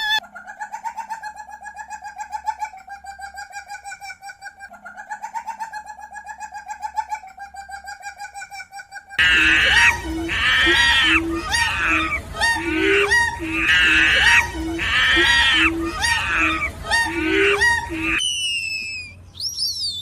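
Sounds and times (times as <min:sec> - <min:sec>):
rapid chattering animal call: 0:09.2 - 0:18.5
harsh animal calls: 0:09.2 - 0:19.2.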